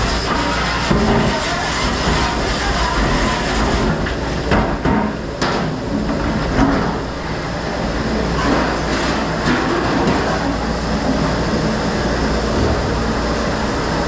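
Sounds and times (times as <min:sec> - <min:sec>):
mechanical rumble: 0:10.6 - 0:14.0.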